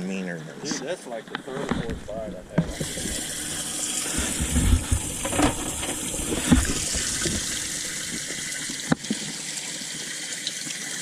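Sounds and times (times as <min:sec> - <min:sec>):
running water: 0:01.5 - 0:11.0
low thumps: 0:01.7 - 0:08.6.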